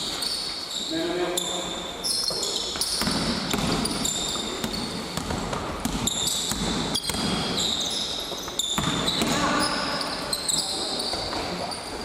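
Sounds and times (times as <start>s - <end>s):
sneakers squeaking on court: 0.0s - 12.0s
basketball bouncing: 2.8s - 9.7s.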